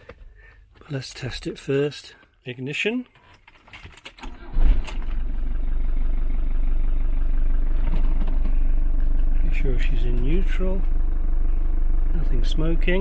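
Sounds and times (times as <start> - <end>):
diesel engine starting and idling: 4.2 - 13.0.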